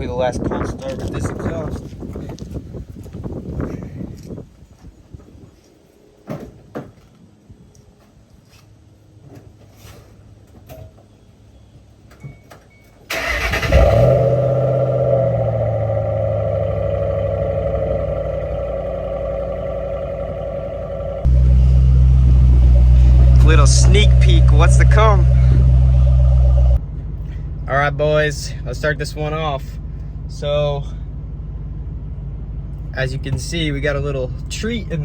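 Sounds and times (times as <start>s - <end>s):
car engine starting and idling: 13.1s - 35.0s.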